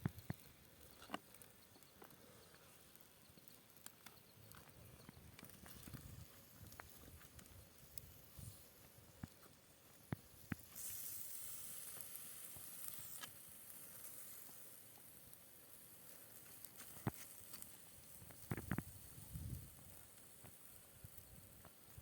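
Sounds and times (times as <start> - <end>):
food sizzling on hot surface: 10.0 - 22.0.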